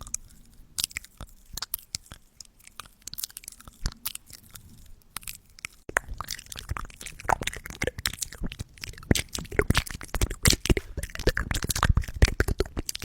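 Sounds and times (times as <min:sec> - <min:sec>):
wet mouth clicks and pops: 0:05.2 - 0:13.0.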